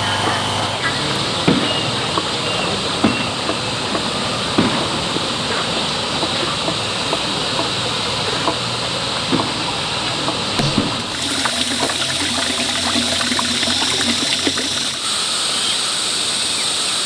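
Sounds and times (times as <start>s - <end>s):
water running and splashing: 10.6s - 15.1s.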